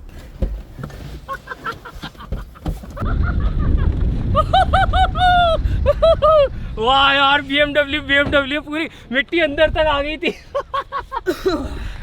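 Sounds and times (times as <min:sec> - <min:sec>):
car engine and tyres rumbling: 0:00.0 - 0:11.7
people whooping: 0:04.3 - 0:06.5.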